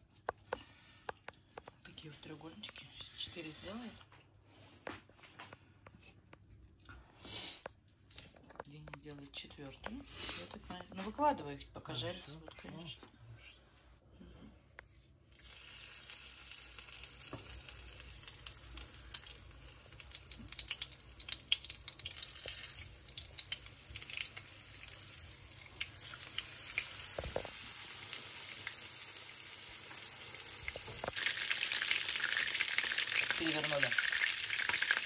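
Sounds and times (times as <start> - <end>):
food sizzling in oil: 15.3 - 35.0.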